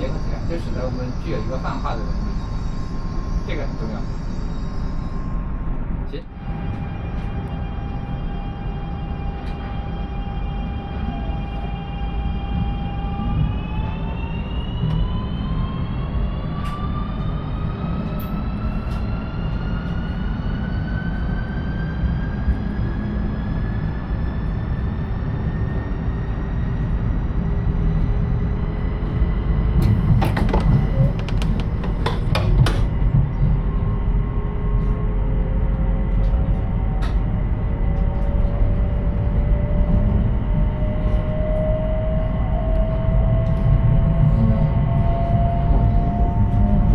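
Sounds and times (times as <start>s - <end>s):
electric train motor whine: 0.0s - 23.0s, 28.7s - 33.2s
train running rumble: 0.0s - 46.9s.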